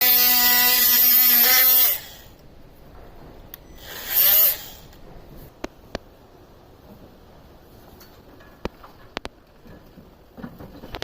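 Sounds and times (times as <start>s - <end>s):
electric power tool running: 0.0s - 2.3s, 3.8s - 5.0s.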